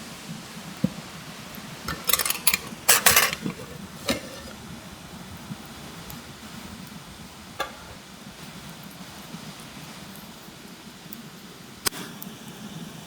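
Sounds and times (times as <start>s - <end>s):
metal cookware clattering: 1.8s - 4.6s, 7.6s - 8.1s.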